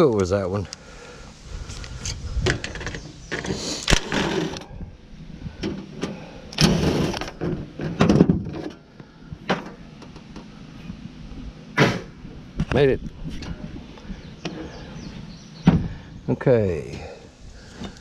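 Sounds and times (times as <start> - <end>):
metal scraping: 2.0 - 4.8.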